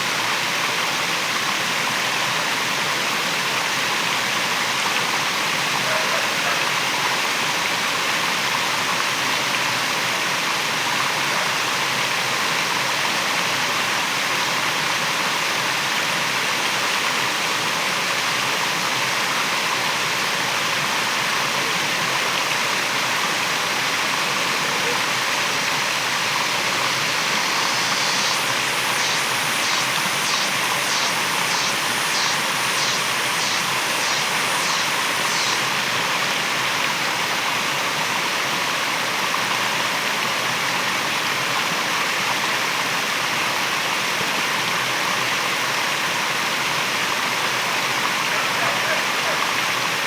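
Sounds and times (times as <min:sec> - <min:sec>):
waterfall roaring: 0:24.0 - 0:36.9.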